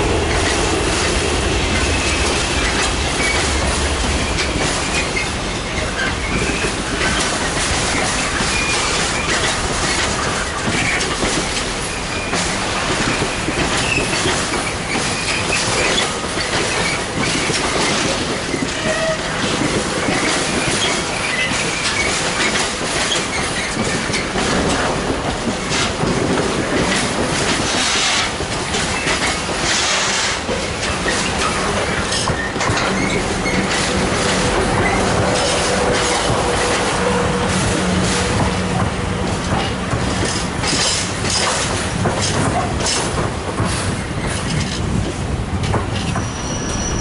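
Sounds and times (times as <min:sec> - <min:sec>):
train wheels clattering: 0:00.0 - 0:47.0
wheel squeals: 0:01.9 - 0:11.1, 0:13.0 - 0:19.4, 0:31.0 - 0:36.9, 0:46.0 - 0:47.0.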